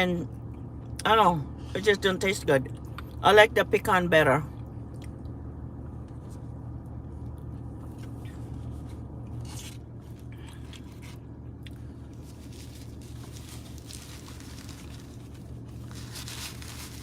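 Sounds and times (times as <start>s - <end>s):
low hum: 0.0s - 17.0s
crunchy chewing: 7.3s - 17.0s.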